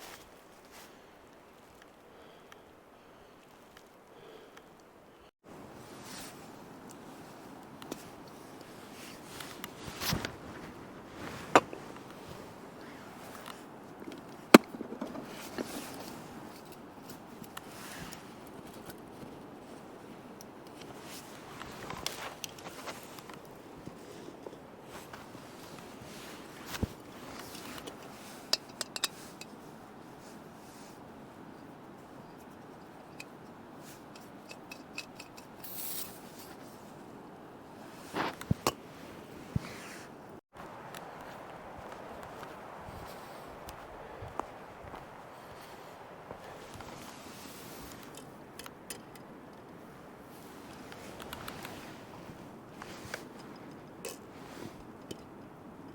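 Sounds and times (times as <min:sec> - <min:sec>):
clatter of object being handled: 0:13.2 - 0:19.3, 0:24.4 - 0:29.6
short hiss: 0:35.6 - 0:36.3.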